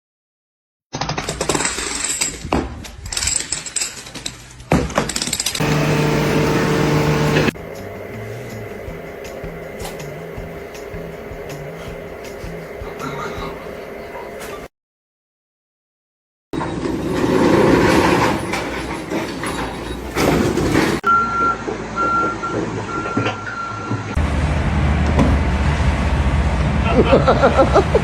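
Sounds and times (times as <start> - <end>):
reversing alarm beeping: 5.6 - 7.6, 21.0 - 24.2
heavy low engine rumble: 5.6 - 14.7, 16.9 - 28.0
loud machinery noise: 5.6 - 14.7, 16.6 - 22.9, 24.0 - 28.0.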